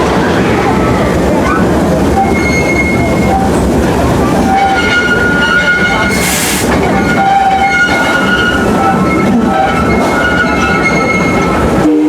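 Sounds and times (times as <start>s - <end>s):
train rolling on rails: 0.0s - 12.0s
high wheel squeal: 2.1s - 11.8s
short sharp hiss: 6.1s - 6.7s.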